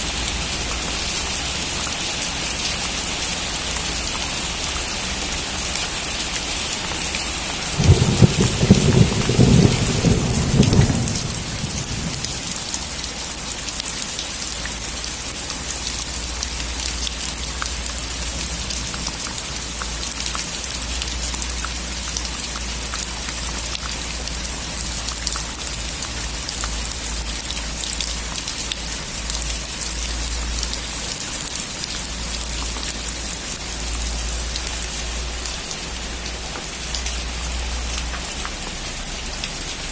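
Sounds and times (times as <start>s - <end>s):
heavy rain on a metal roof: 0.0s - 39.9s
thunder clap rumbling: 7.8s - 12.6s.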